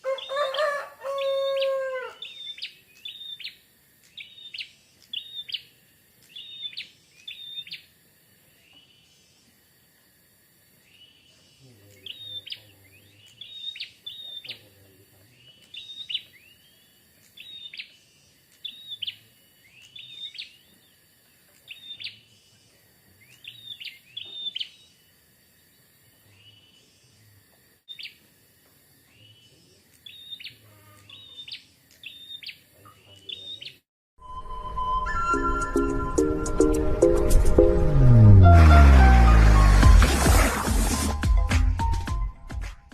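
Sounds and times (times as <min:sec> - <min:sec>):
bird chirping: 0:00.0 - 0:07.9, 0:10.8 - 0:25.0, 0:27.9 - 0:28.2, 0:29.0 - 0:39.8.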